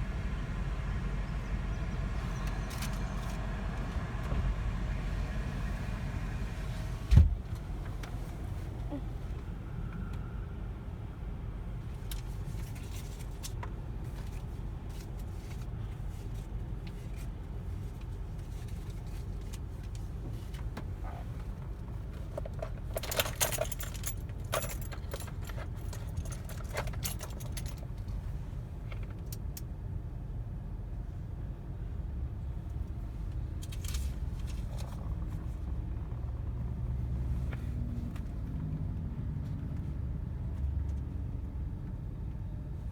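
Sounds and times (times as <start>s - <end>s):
car wash rumble: 0.0s - 9.0s
metallic jingling and clicks: 22.4s - 28.1s.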